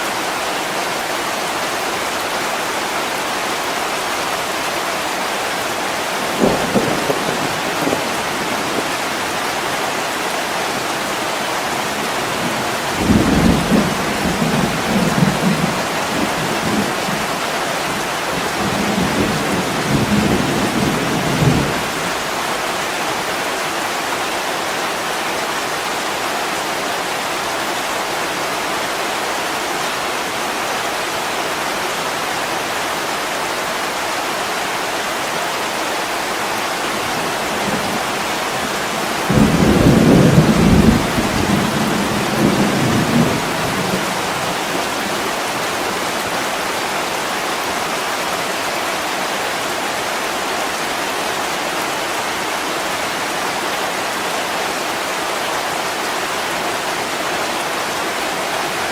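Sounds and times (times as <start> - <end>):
heavy rain on a window: 0.0 - 58.9
low rolling thunder: 6.3 - 9.0, 37.6 - 45.4.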